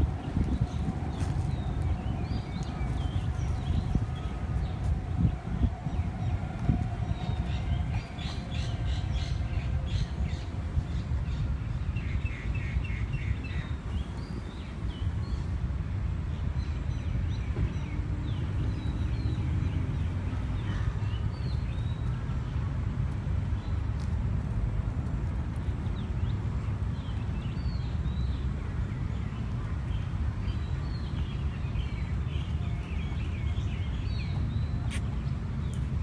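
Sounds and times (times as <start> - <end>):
birds chirping: 0.0 - 15.5.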